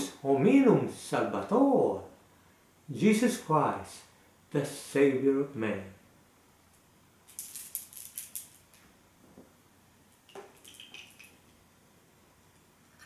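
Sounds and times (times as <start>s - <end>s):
small hard objects clattering: 7.3s - 8.7s, 10.3s - 11.4s.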